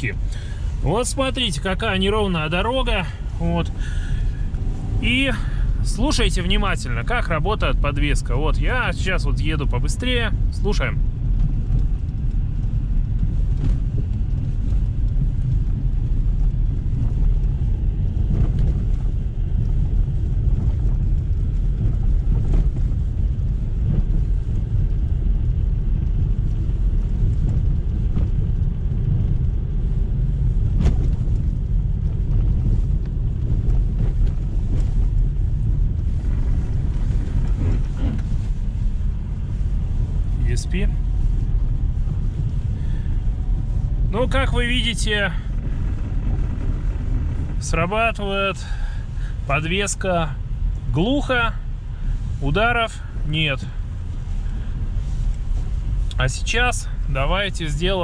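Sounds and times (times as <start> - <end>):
tyre and suspension rumble: 0.0 - 58.0
dull suspension thumps: 10.4 - 49.5.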